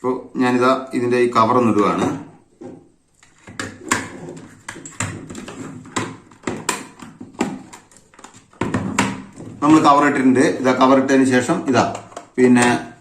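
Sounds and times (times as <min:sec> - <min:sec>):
plastic cover clicking into place: 0:03.2 - 0:09.3, 0:11.8 - 0:13.0.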